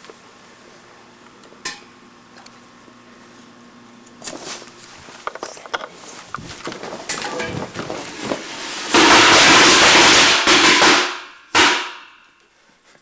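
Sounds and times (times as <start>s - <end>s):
loud firecracker bursts: 8.4s - 12.2s.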